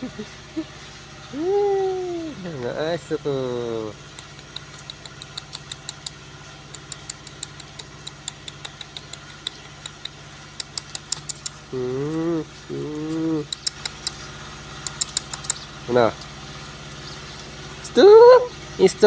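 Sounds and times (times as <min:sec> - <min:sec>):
engine idling hum: 0:00.0 - 0:19.0
light irregular clicks: 0:04.0 - 0:11.7, 0:13.4 - 0:15.6.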